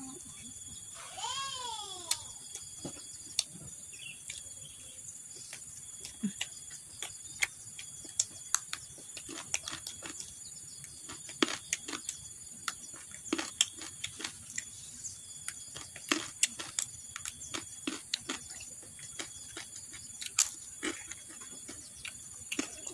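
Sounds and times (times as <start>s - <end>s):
insects trilling: 0.0s - 22.9s
chewing crunchy vegetables: 5.3s - 14.8s, 15.4s - 22.9s.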